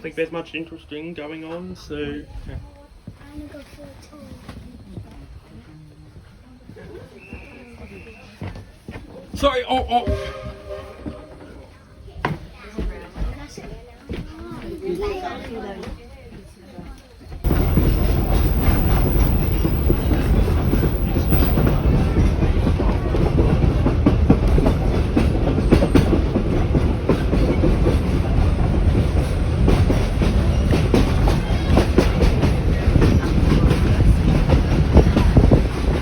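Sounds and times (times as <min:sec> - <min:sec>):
train wheels rumbling on rail: 0:17.4 - 0:36.0
clacks over rail joints: 0:17.5 - 0:28.2.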